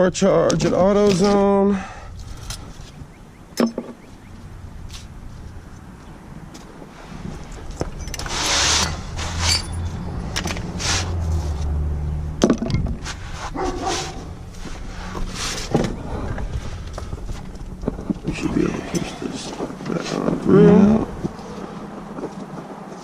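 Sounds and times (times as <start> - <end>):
low engine hum: 1.8 - 23.0
metal tools clinking: 3.6 - 4.0, 7.7 - 10.7.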